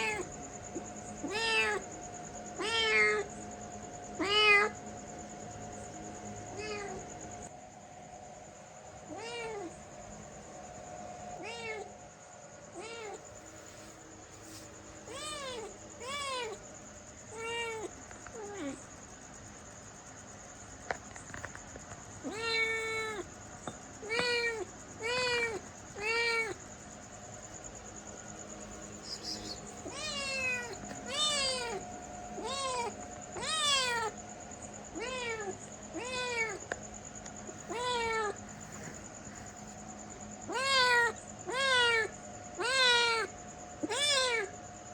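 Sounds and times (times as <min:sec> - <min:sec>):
cat meowing: 0:00.0 - 0:00.3, 0:01.2 - 0:01.9, 0:02.6 - 0:03.3, 0:04.2 - 0:04.8, 0:06.5 - 0:07.0, 0:09.1 - 0:09.7, 0:11.4 - 0:11.9, 0:12.8 - 0:13.2, 0:15.0 - 0:16.6, 0:17.3 - 0:18.8, 0:22.2 - 0:23.3, 0:24.0 - 0:26.6, 0:29.2 - 0:34.2, 0:34.9 - 0:36.6, 0:37.5 - 0:38.4, 0:40.5 - 0:44.5
faint steady whine: 0:00.0 - 0:44.9.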